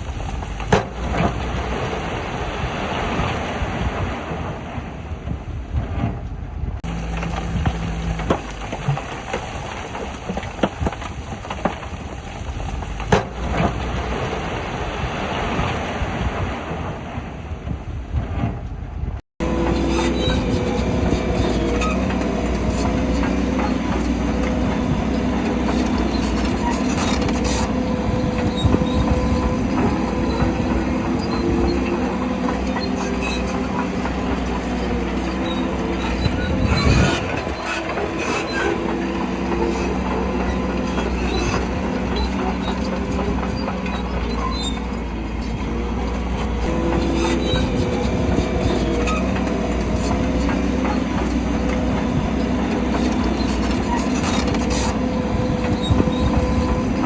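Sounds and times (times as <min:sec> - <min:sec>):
bulldozer diesel engine under load: 0:00.0 - 0:57.0
steel tracks clanking and squealing: 0:19.4 - 0:57.0.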